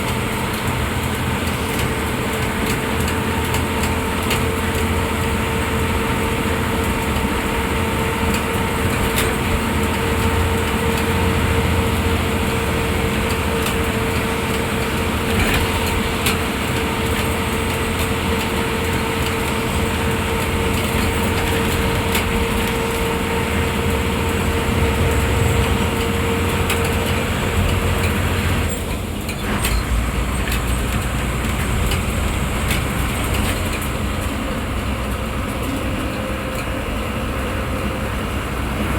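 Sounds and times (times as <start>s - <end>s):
diesel bus engine: 0.0s - 38.9s
road noise: 0.0s - 38.9s
steady whine: 21.6s - 28.7s.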